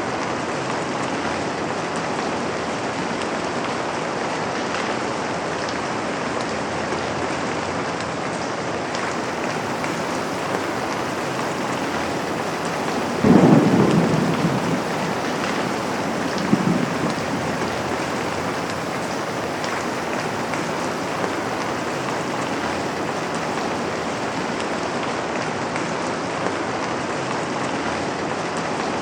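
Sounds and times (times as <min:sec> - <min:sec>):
rain falling on a window: 0:08.8 - 0:25.3
low rumble of thunder: 0:08.9 - 0:25.1.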